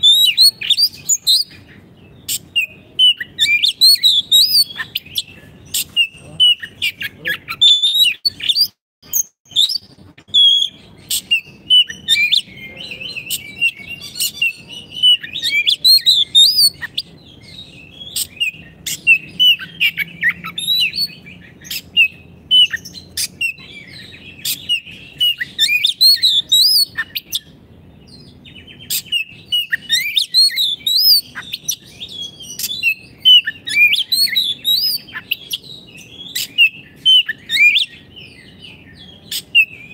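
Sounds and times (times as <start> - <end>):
bird warbling song: 0.0 - 39.9.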